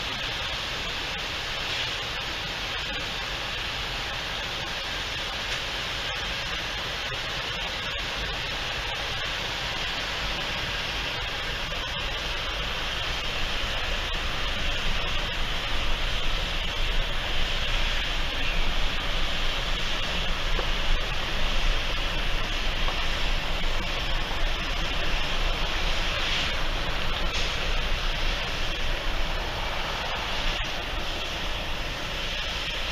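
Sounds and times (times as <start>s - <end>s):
steady rushing noise: 0.0s - 32.9s
low rumble: 11.2s - 32.9s.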